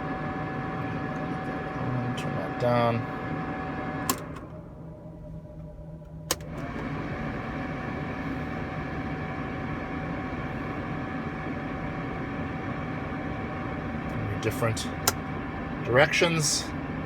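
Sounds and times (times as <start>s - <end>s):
switch clicking: 6.3s - 6.5s.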